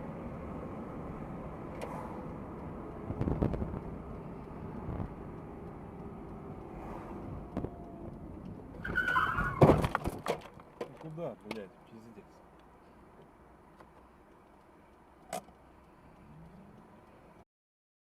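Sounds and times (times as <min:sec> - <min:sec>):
car road and engine noise: 0:00.0 - 0:17.4.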